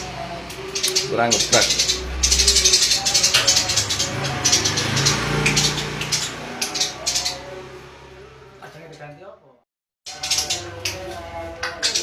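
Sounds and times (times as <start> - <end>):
songbird chattering: 0.7 - 7.5.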